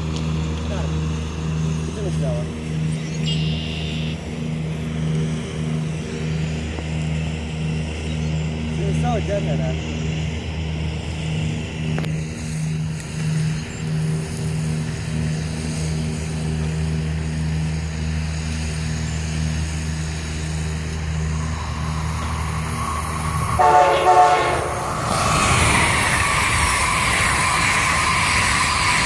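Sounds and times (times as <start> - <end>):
high-speed train passing: 0.0 - 29.0
train horn blast: 23.3 - 25.2.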